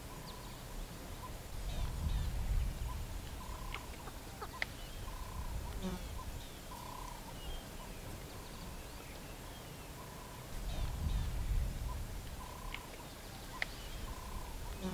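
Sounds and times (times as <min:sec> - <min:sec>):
small birds chirping: 0:00.0 - 0:14.9
bird hooting: 0:02.9 - 0:07.9, 0:13.5 - 0:14.9.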